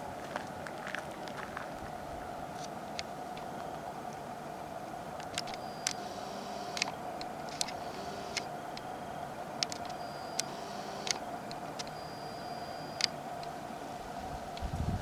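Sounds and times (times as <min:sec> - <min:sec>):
steady low hum: 0:00.0 - 0:15.0
small birds chirping: 0:05.0 - 0:13.6.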